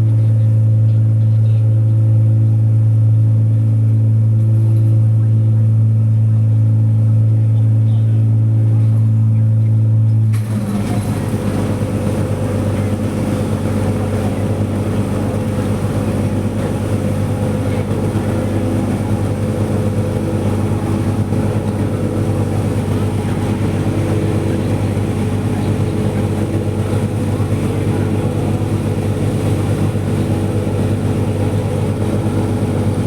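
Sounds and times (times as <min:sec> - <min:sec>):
ferry engines humming: 0:00.0 - 0:33.0
wind: 0:00.0 - 0:33.0
rushing water: 0:10.3 - 0:33.0.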